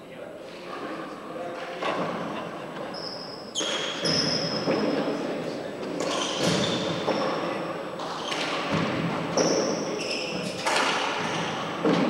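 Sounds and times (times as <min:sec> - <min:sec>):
high squeaks: 0:02.8 - 0:04.8, 0:06.0 - 0:07.5, 0:09.4 - 0:11.5.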